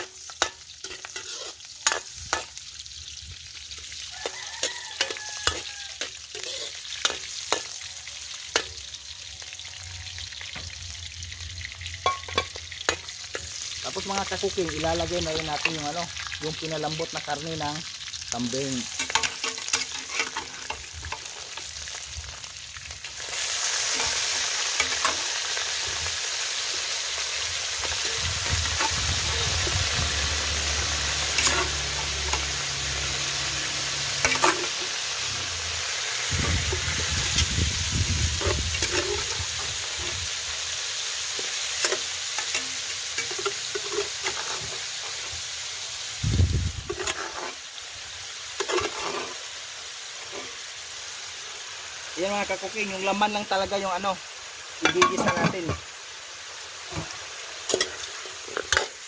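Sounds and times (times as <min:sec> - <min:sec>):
meat sizzling in a wok: 0:00.0 - 0:59.0
metal ladle clinking on wok: 0:12.0 - 0:13.5, 0:54.8 - 0:55.8.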